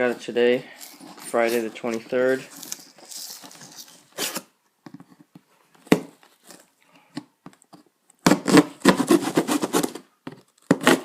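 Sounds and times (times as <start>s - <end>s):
packing tape tearing: 2.5s - 4.5s, 8.3s - 11.0s.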